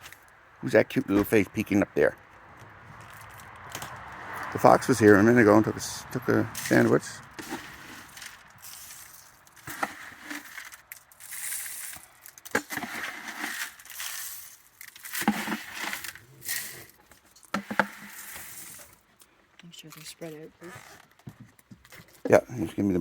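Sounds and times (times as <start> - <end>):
raccoons crunching and chewing: 6.2 - 22.5
sharp clicks and crackles: 6.6 - 22.3.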